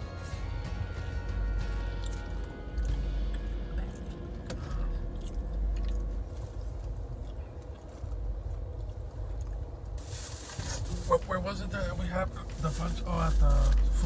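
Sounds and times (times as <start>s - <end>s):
car air conditioning hum: 0.0s - 14.0s
chewing and biting fried food: 1.6s - 10.0s.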